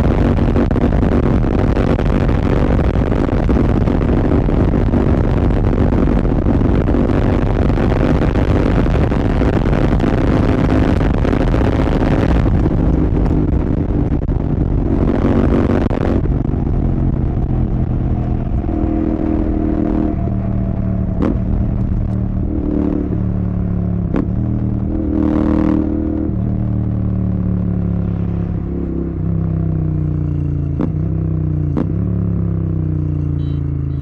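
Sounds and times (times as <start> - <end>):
wind rushing over microphone: 0.0 - 32.2
motorcycle engine running: 0.0 - 34.0.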